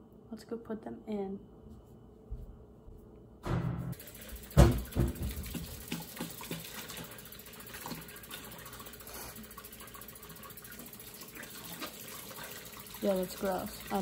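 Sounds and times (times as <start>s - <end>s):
loud thump: 3.4s - 4.0s, 4.6s - 5.5s.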